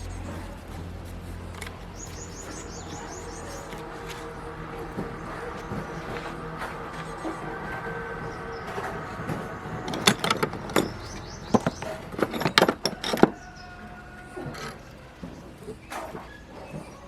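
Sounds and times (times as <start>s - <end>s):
metal tools clinking and knocking: 8.7s - 16.2s.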